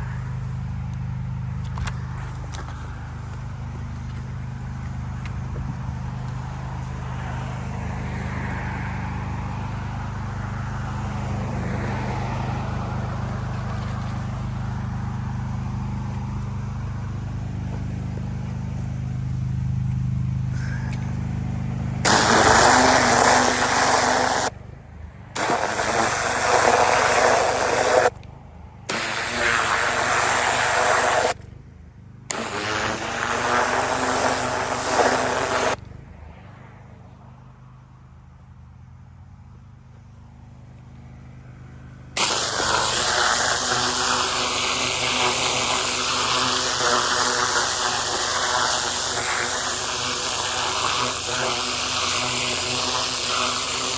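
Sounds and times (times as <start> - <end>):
pressure washer engine running: 0.0 - 24.7, 25.3 - 28.1, 28.9 - 31.5, 32.3 - 35.8, 41.9 - 53.9
water jet hissing into soil: 22.0 - 24.5, 25.4 - 28.1, 28.9 - 31.4, 32.3 - 35.8, 42.2 - 53.9.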